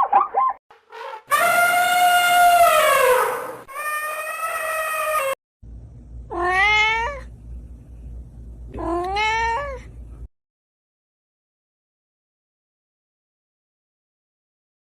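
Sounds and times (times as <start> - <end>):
low hum: 5.6 - 8.8
cat meowing: 6.3 - 7.3, 8.7 - 9.9.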